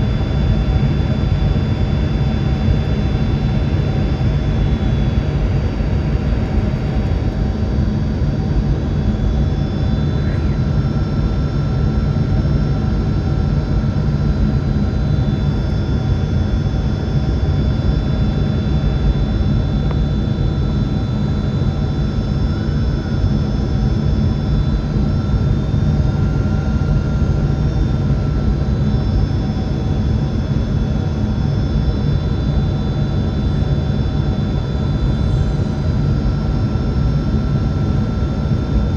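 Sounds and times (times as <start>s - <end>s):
airliner cabin rumble: 0.0s - 12.3s.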